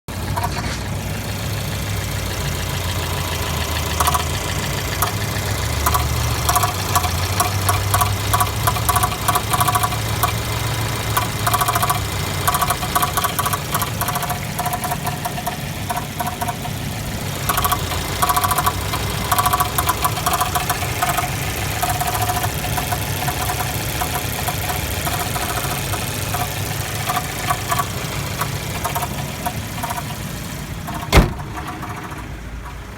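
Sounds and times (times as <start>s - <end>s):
car engine running: 0.0s - 32.9s
engine clicking-knocking noise: 0.1s - 32.9s.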